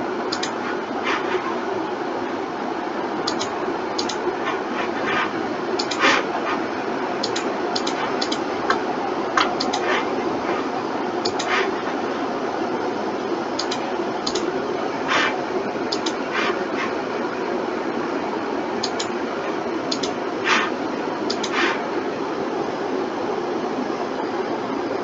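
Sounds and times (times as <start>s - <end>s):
mouse and keyboard clicking: 0.3s - 1.4s, 3.3s - 4.2s, 4.8s - 6.2s, 7.2s - 8.8s, 9.4s - 10.1s, 11.2s - 11.8s, 13.6s - 14.5s, 15.1s - 16.9s, 18.8s - 19.2s, 19.9s - 20.7s, 21.3s - 21.8s.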